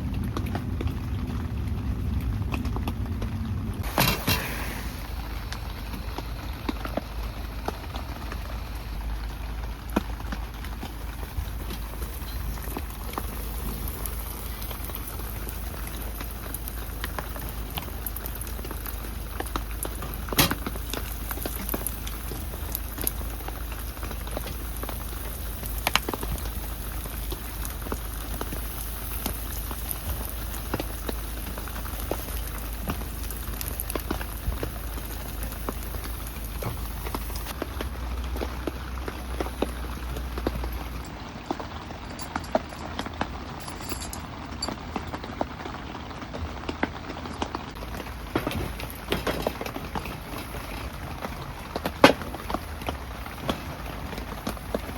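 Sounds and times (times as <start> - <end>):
rain falling: 0.0 - 54.9
sharp water drips: 4.8 - 45.5.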